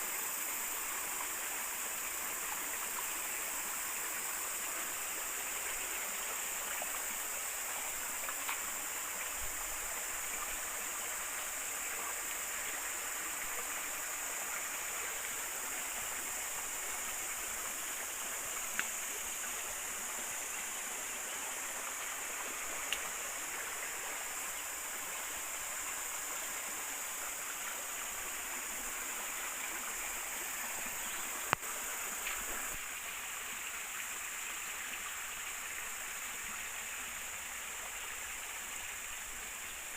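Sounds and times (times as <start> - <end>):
river water over stones: 0.0 - 39.9.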